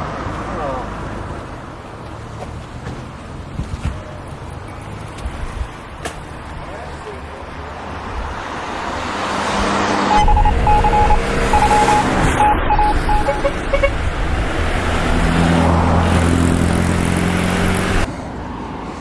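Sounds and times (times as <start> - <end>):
road traffic: 0.0 - 19.0
short high beeps: 10.1 - 14.0.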